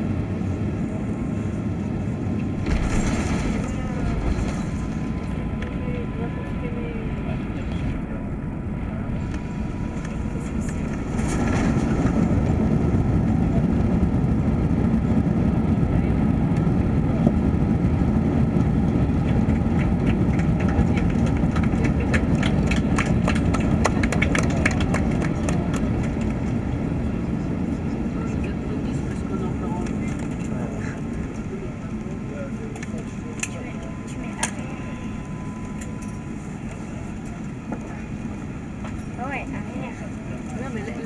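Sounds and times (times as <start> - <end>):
engine and runway roar: 0.0 - 41.0.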